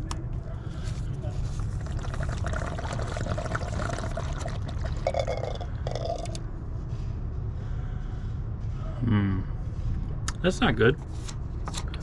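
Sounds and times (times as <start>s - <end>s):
steady low hum: 0.0s - 12.0s
liquid pouring and trickling: 1.6s - 6.4s.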